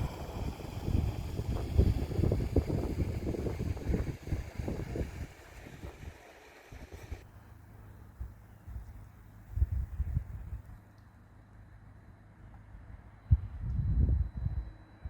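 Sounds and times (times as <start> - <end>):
wind buffeting microphone: 0.0 - 7.2, 9.5 - 10.7, 13.3 - 14.7.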